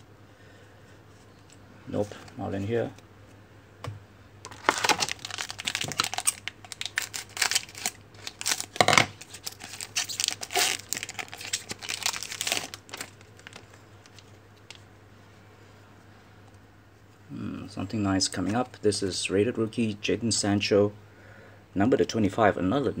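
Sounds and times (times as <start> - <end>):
plastic wrapper crinkling and tearing: 4.4 - 14.8
cards rustling and clicking: 4.5 - 14.8.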